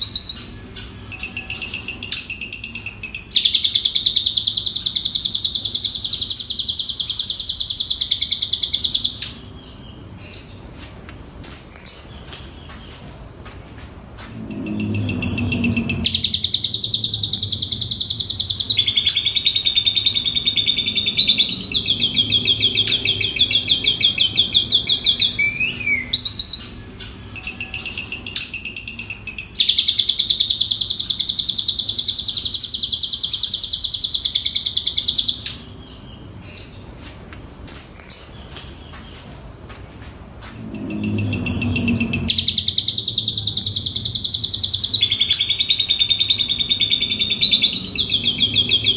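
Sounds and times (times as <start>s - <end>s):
starling chattering trills: 14.2s - 35.4s, 40.4s - 48.9s.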